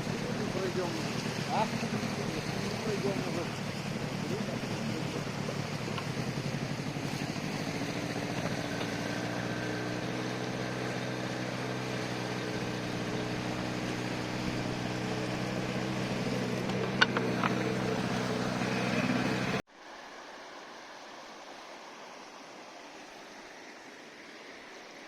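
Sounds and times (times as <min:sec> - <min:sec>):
outboard motor drone: 0:00.0 - 0:19.6.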